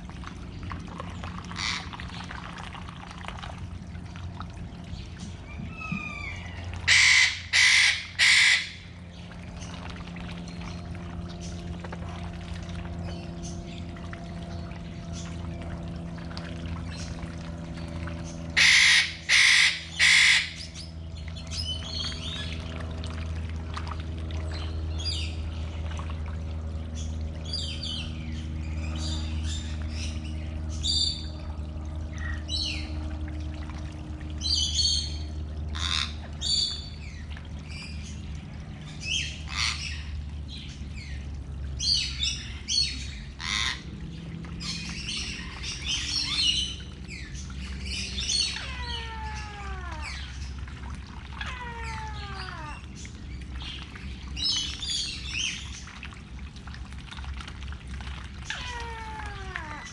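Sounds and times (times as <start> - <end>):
steady low hum: 0.0 - 59.9
birds chirping and calling: 1.2 - 2.2, 5.0 - 9.7, 16.8 - 22.6, 26.9 - 31.5, 32.1 - 33.0, 34.4 - 43.9, 44.6 - 50.7, 51.4 - 55.9, 58.4 - 59.9.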